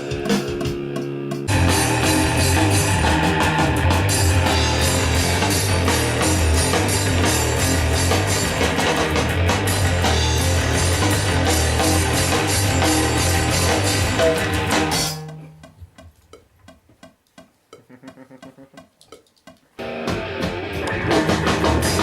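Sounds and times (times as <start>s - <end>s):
loud rock music: 0.0s - 15.3s, 19.8s - 22.0s.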